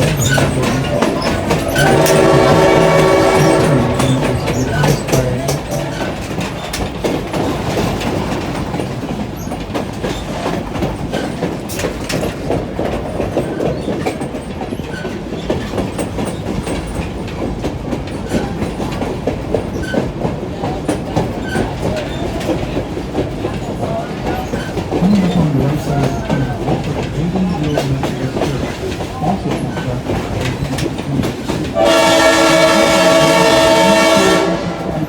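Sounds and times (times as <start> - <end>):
train cars rumbling on track: 0.0 - 35.0
wheels clattering over rail joints: 0.0 - 35.0.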